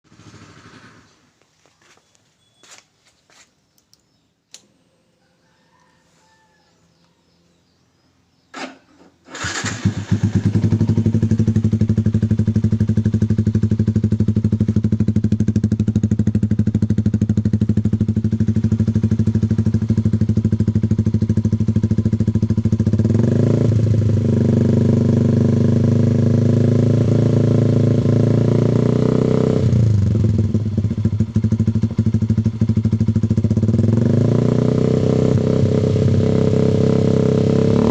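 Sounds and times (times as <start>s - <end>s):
motorcycle engine revving: 0.1s - 1.4s, 8.5s - 37.9s
click: 3.7s - 4.8s
motorcycle engine idling: 10.0s - 26.7s, 29.8s - 34.8s.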